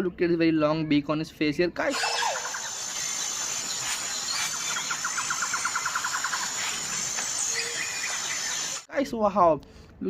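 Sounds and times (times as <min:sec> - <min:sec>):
bird chirps: 0:01.9 - 0:08.9
fast rattling bird trill: 0:01.9 - 0:08.9
steady high hiss: 0:02.0 - 0:08.9.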